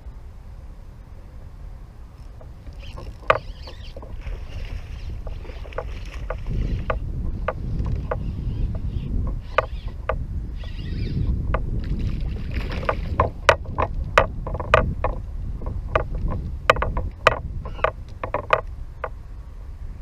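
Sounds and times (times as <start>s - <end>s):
steady low rumble: 0.0s - 20.0s
hollow knocks on plastic kayak: 3.0s - 8.2s, 11.5s - 18.7s.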